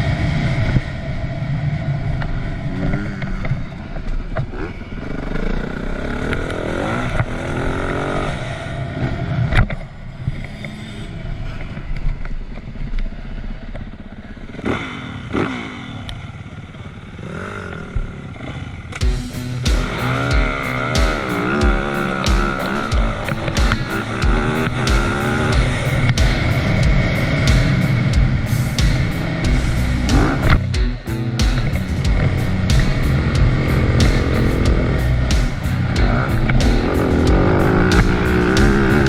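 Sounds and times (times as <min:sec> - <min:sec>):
motorcycle engine revving: 0:00.0 - 0:09.9, 0:10.7 - 0:39.0
sharp knocks: 0:19.0 - 0:39.0.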